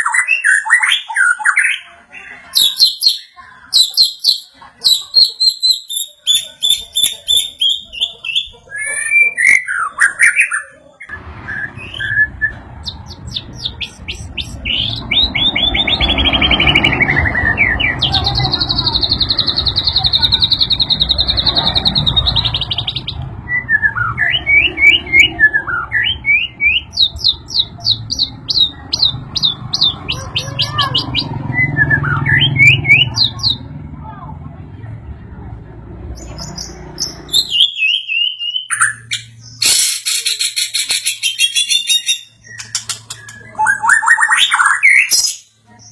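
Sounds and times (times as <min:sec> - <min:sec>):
songbird whistling and chirping: 0:00.0 - 0:01.9, 0:02.6 - 0:33.6, 0:36.2 - 0:45.9.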